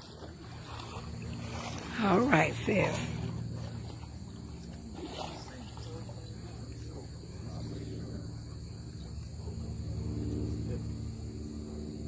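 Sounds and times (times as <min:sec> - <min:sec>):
insects chorus: 0:00.0 - 0:12.0
low background rumble: 0:00.1 - 0:12.0.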